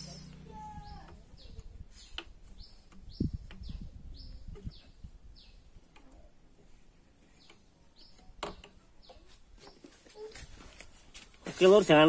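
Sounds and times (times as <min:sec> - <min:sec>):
small bird chirping: 0:00.0 - 0:10.4
low dull knocks of engine parts: 0:00.7 - 0:05.2.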